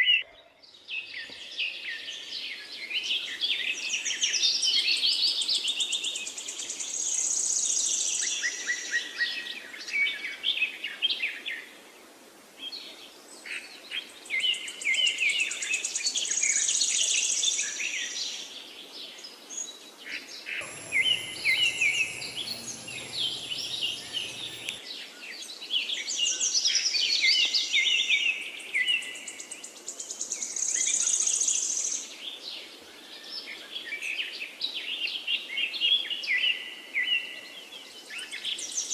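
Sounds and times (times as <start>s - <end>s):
birds chirping and chattering: 20.6s - 24.8s
low hum: 20.6s - 24.8s
steady high-pitched tone: 20.6s - 24.8s.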